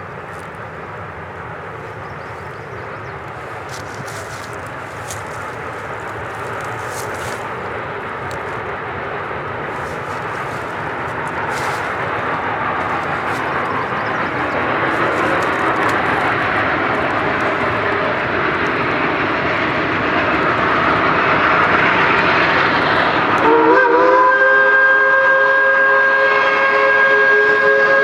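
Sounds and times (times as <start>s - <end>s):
steam locomotive exhaust: 0.0s - 28.0s
steam whistle chord: 23.2s - 28.0s.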